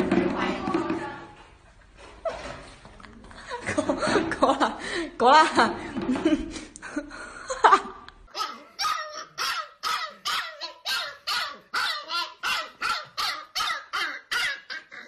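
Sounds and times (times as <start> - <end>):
puppy barking: 8.3 - 15.0.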